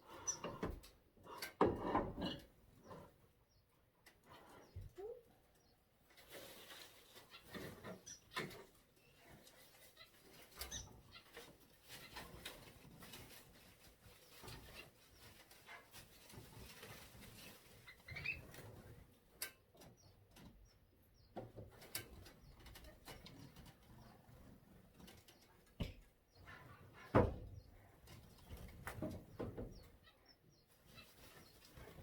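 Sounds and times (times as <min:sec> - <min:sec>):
birds chirping: 0:19.8 - 0:24.4.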